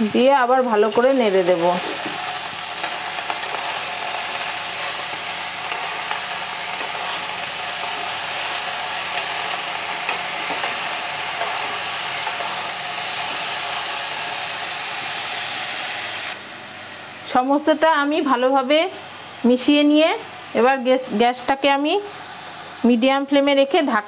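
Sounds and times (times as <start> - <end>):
vegetables sizzling in oil: 0.0 - 24.0
metal spatula scraping pan: 0.7 - 12.7.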